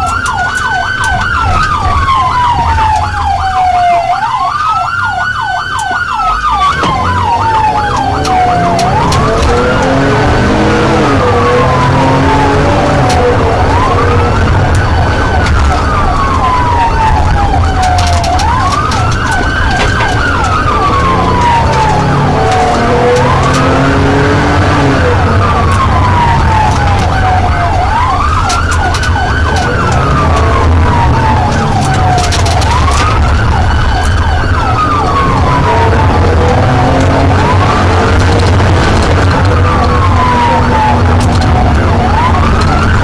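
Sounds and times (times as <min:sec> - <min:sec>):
police siren wailing: 0:00.0 - 0:43.0
vehicle and road rumble: 0:00.0 - 0:43.0.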